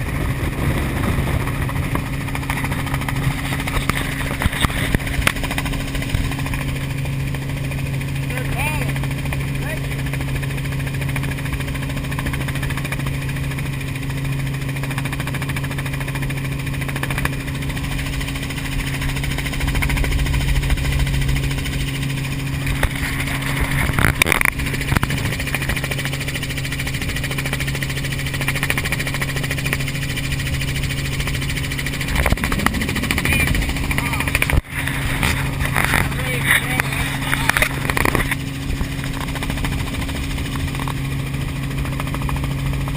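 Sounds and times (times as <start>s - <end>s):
helicopter droning: 0.0s - 42.9s.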